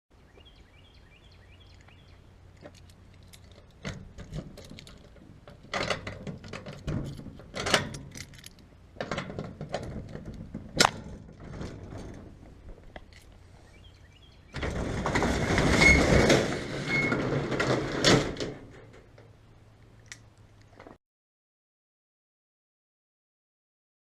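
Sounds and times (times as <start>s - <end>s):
metallic clinks and clattering: 2.6s - 10.4s.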